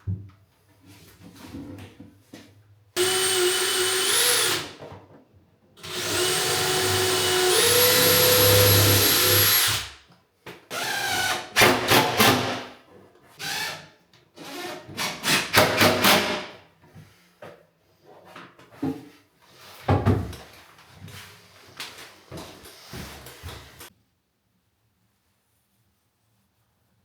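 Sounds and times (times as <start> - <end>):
saw motor whining: 5.8 - 9.8
choppy bursts of tool noise: 5.8 - 9.9.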